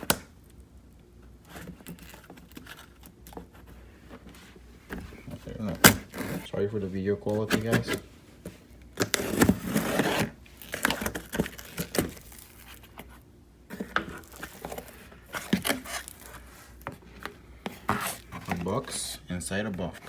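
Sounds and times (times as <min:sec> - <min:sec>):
cardboard and tape tearing: 0:01.4 - 0:04.3, 0:05.4 - 0:06.6, 0:07.2 - 0:08.1, 0:09.0 - 0:16.9, 0:17.6 - 0:19.0.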